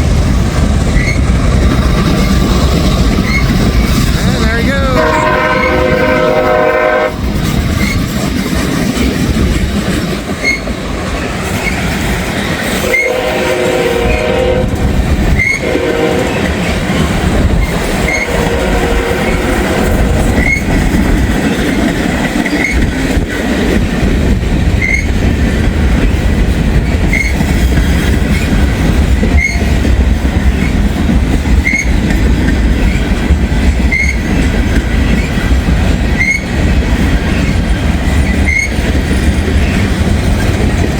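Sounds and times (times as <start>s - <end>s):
freight train rumbling: 0.0s - 40.9s
locomotive horn: 4.9s - 7.2s, 12.8s - 14.8s, 15.4s - 16.5s, 18.0s - 20.4s
wheels clattering over rail joints: 7.2s - 13.1s, 20.2s - 40.9s.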